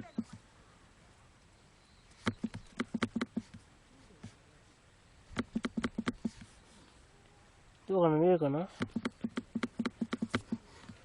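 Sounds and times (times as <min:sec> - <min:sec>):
quick sharp clicks and taps: 0:02.2 - 0:03.6, 0:05.4 - 0:06.5, 0:08.8 - 0:11.0.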